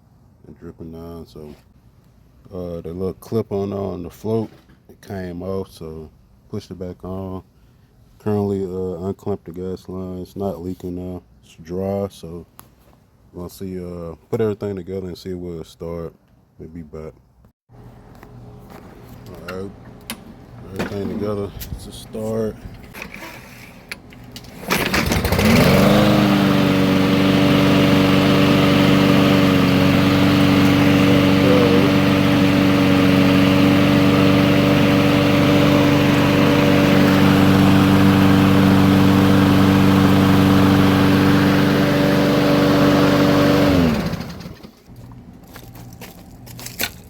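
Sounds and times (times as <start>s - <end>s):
lawn mower engine running: 24.0s - 46.8s.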